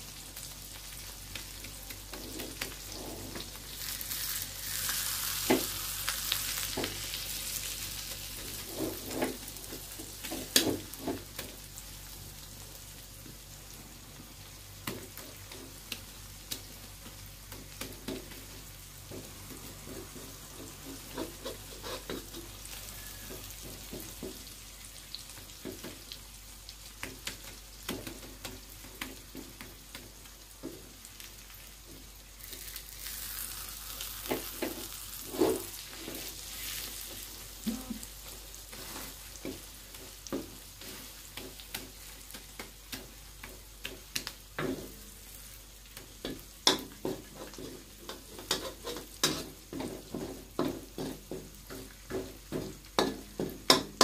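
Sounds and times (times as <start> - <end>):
egg sizzling in oil: 0.0 - 54.0
spatula scraping and knocking pan: 8.4 - 11.2, 19.1 - 24.4, 34.2 - 37.2, 46.2 - 54.0.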